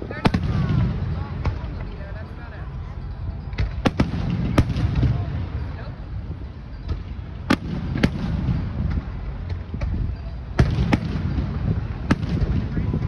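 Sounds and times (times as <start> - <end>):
fireworks bangs: 0.0 - 2.4, 3.4 - 13.0.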